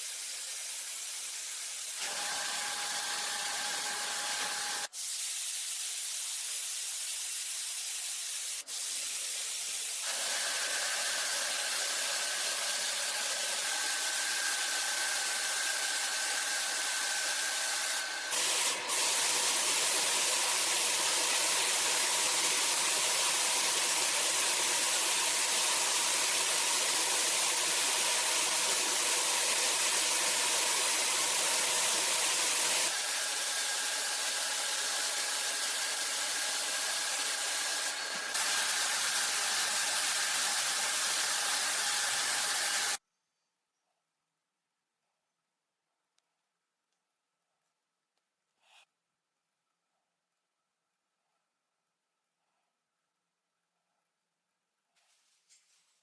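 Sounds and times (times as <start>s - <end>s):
compressed air hissing: 4.0s - 10.2s.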